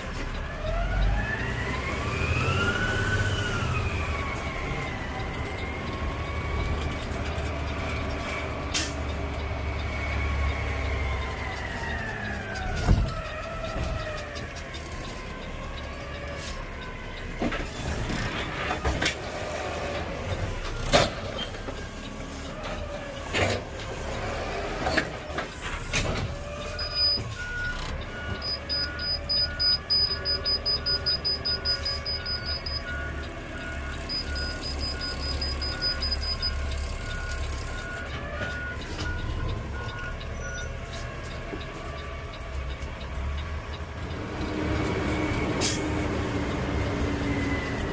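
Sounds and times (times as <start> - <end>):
higher faster beep: 28.3 - 33.1, 34.0 - 36.6
reverse beeper beeping: 28.3 - 33.1, 34.0 - 36.6.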